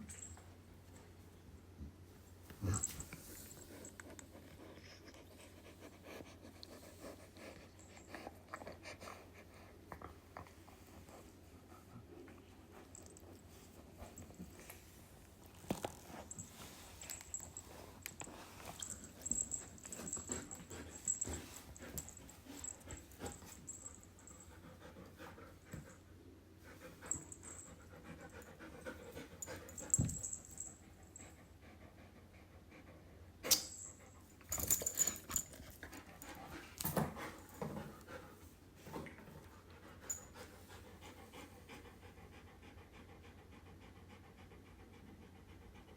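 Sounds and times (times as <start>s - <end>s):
dog panting: 16.2s - 33.4s, 39.4s - 45.9s.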